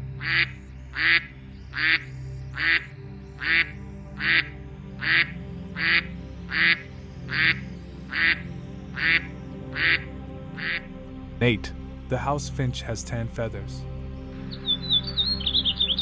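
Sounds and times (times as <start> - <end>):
soft background music: 0.0 - 16.0
duck quacking: 0.2 - 8.4, 9.0 - 10.8.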